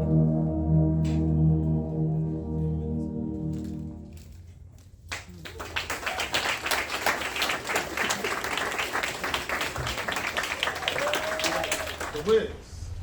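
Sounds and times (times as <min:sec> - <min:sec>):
audience applause: 0:05.1 - 0:12.4.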